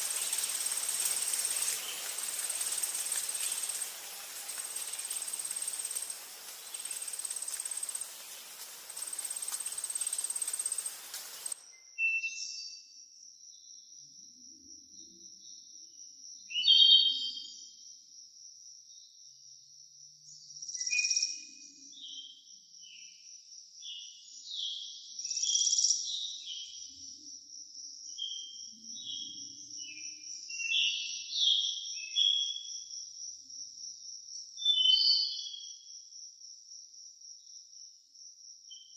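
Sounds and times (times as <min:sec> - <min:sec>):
high-pitched insect buzz: 0:00.0 - 0:11.6
steady hiss: 0:00.0 - 0:11.6
insect trill: 0:00.0 - 0:12.0, 0:25.0 - 0:38.9
bird chirps and calls: 0:00.0 - 0:12.4.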